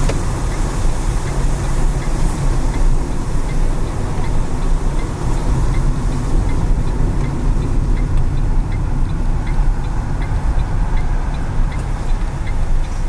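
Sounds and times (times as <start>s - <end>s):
tyre hiss on wet road: 0.0s - 6.1s
car engine and road rumble: 0.0s - 13.0s
light regular ticking: 0.0s - 13.0s.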